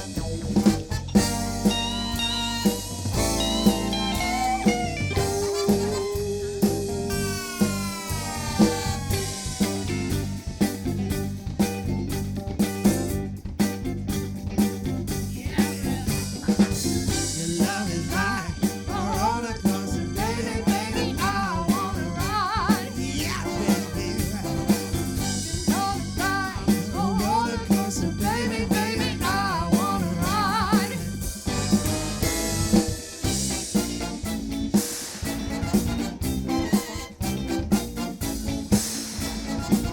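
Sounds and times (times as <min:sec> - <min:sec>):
bass: 0:00.0 - 0:39.9
drum kit: 0:00.0 - 0:39.9
guitar: 0:00.0 - 0:39.9
wavering melodic line: 0:01.2 - 0:10.4.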